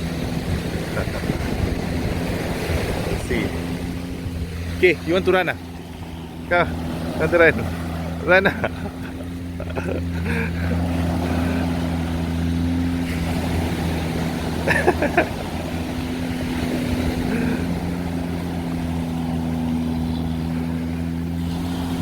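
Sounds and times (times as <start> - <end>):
motorboat engine running: 0.0 - 22.0
voices: 3.0 - 16.3.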